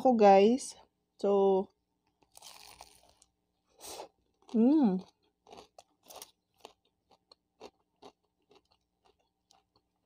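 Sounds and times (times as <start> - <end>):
faint crunchy chewing: 2.0 - 10.0.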